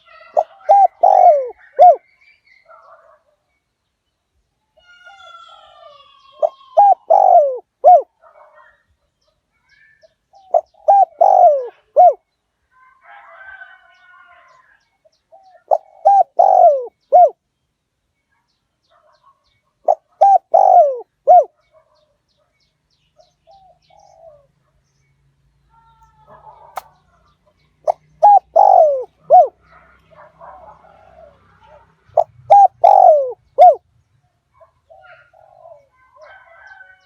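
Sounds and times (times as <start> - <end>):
dove cooing: 0.0 - 2.0, 5.1 - 8.2, 10.3 - 12.2, 15.3 - 17.4, 19.8 - 21.6, 23.5 - 24.5, 27.8 - 33.8, 34.9 - 36.9
faint bird chirping: 0.0 - 12.8.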